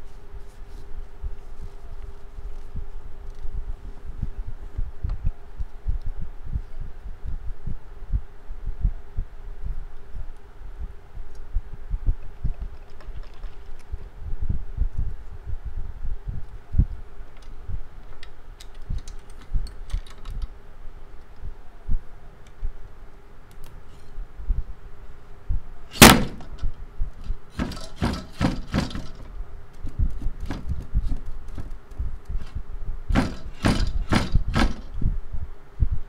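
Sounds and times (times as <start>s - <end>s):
faint steady hum: 0.0s - 36.0s
hard knocks and clacks: 27.6s - 29.3s, 33.1s - 34.9s.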